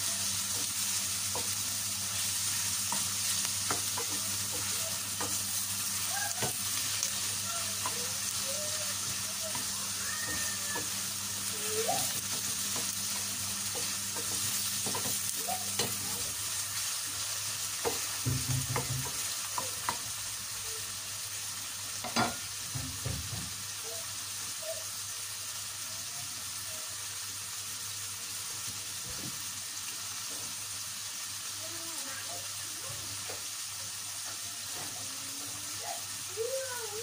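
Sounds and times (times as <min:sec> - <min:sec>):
meat sizzling in a pan: 0:00.0 - 0:37.0
wooden spoon knocking a pan: 0:13.8 - 0:16.0, 0:17.8 - 0:20.0.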